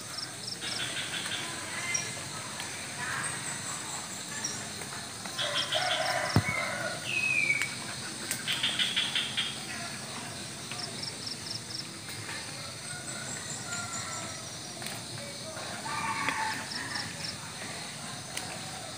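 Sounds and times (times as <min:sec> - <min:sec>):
rooster crowing: 0:05.4 - 0:07.2, 0:15.8 - 0:17.1.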